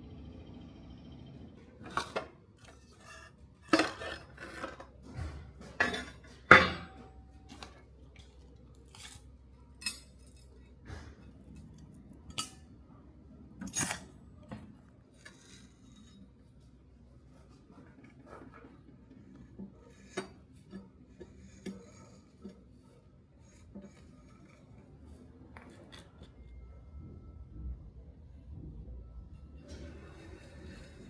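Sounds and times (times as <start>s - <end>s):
metal tools clinking and knocking: 5.6s - 12.7s, 13.6s - 14.2s.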